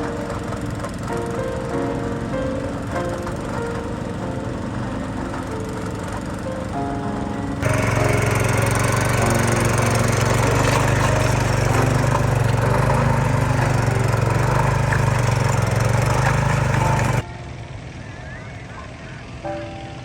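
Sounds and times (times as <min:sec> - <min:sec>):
small engine at high revs: 0:07.6 - 0:17.2.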